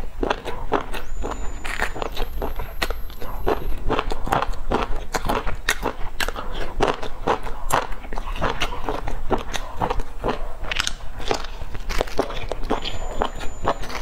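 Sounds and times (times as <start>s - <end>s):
person chewing and smacking: 0.0s - 14.0s
bite into flatbread: 3.7s - 14.0s.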